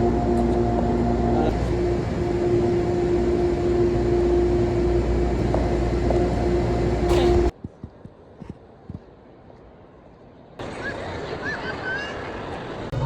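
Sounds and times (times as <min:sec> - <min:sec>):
subway train rumbling: 0:00.0 - 0:07.6.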